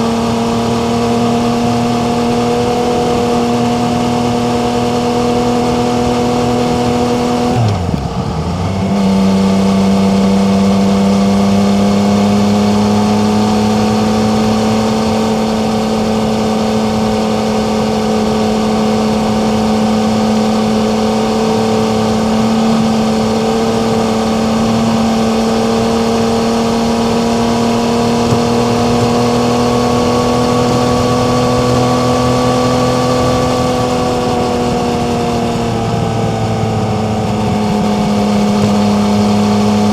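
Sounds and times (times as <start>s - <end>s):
motorcycle engine under load: 0.0s - 39.9s.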